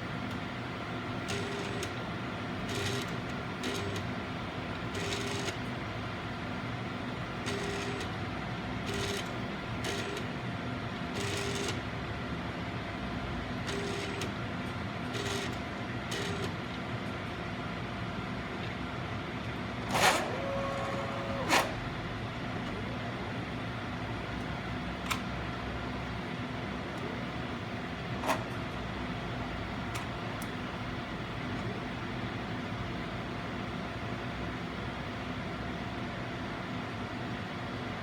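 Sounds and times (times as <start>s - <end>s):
steady machine hum: 0.0s - 38.0s
sharp mechanical sound: 19.9s - 20.4s, 21.3s - 21.9s
short mechanical whirring moves: 19.9s - 21.8s.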